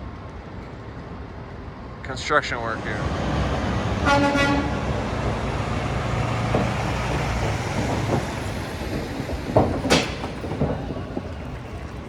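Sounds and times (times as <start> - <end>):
heavy road traffic: 0.0 - 12.0
truck engine rumbling: 2.1 - 12.0
sharp loud knocks: 4.2 - 11.4.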